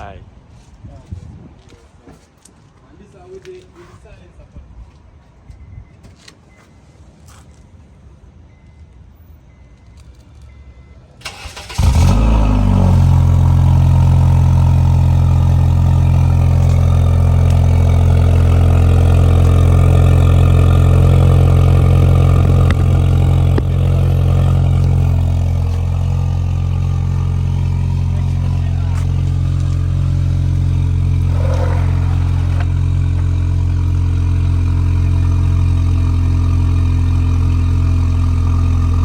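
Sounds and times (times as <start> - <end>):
car starter cranking: 11.2 - 12.6
car engine revving and idling: 11.2 - 39.0.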